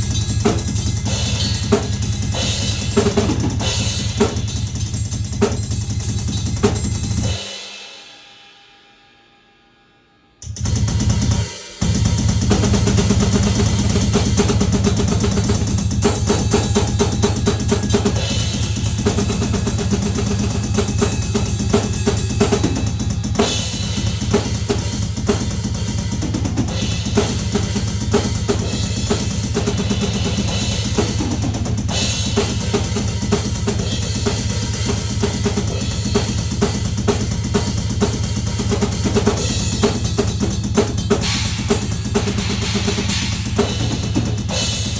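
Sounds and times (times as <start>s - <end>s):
drum kit played fast: 0.0s - 8.4s, 10.5s - 44.9s.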